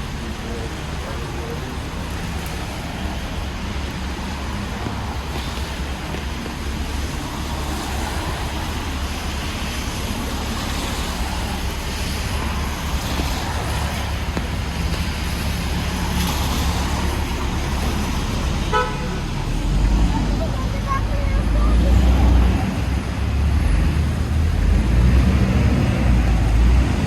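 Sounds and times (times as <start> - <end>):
cars passing on wet road: 0.0 - 27.0
short car horn toot: 18.7 - 19.2.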